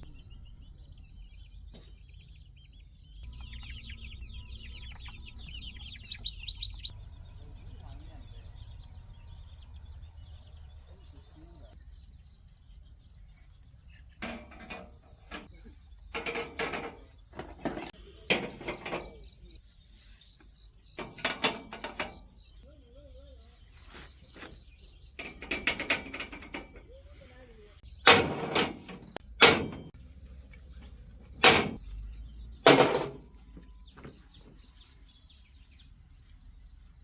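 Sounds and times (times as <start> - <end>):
insects chirring: 0.0 - 37.0
knocks and scrapes from handling: 16.2 - 19.2, 21.0 - 22.3, 28.1 - 30.0, 31.3 - 31.8.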